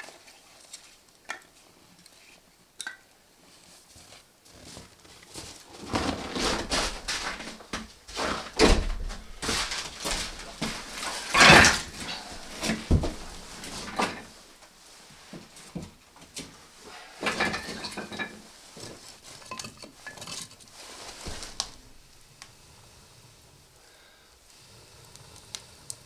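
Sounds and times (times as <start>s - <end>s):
objects rustling scraping and knocking: 3.4s - 22.3s.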